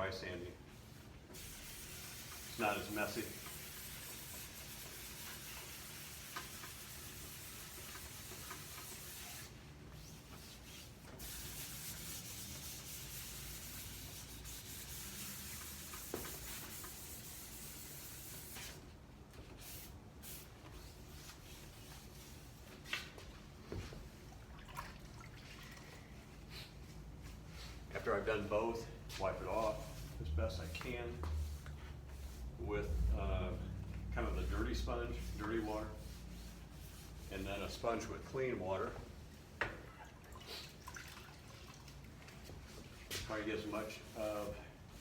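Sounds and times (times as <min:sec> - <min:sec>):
sandpaper rubbing hiss: 0:01.4 - 0:18.8.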